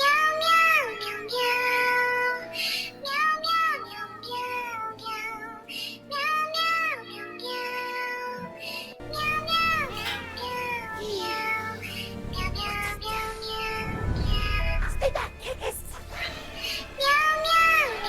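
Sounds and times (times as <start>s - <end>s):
soft musical accompaniment: 0.0s - 18.0s
high child-like singing voice: 9.1s - 15.7s, 17.0s - 18.0s.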